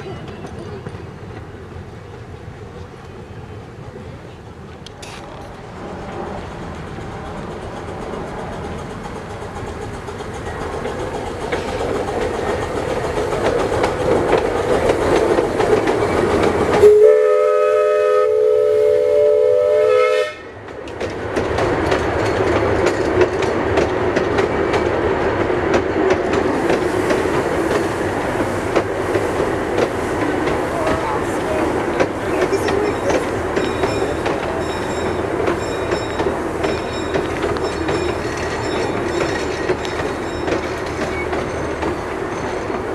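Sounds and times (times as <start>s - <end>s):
wheels clicking over rail joints: 0.0s - 17.0s, 20.6s - 42.9s
steam train rolling along rails: 0.0s - 42.9s
steam whistle chord: 16.8s - 20.5s.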